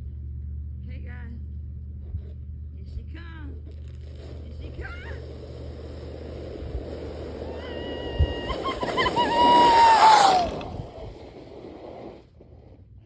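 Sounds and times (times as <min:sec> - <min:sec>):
sled scraping on ice: 0:03.6 - 0:13.0
sled bump: 0:03.8 - 0:12.8.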